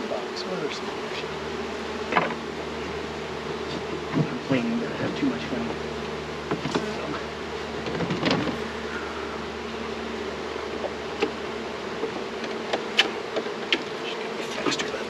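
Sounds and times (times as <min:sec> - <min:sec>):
bees buzzing: 0:00.0 - 0:15.0
sharp clicks and knocks: 0:02.1 - 0:02.4, 0:07.8 - 0:08.6.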